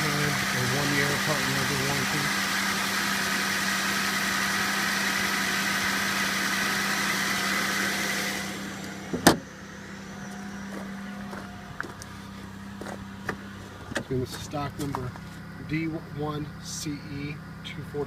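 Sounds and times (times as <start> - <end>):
car engine idling: 0.0 - 18.0
loud thump: 9.1 - 9.5.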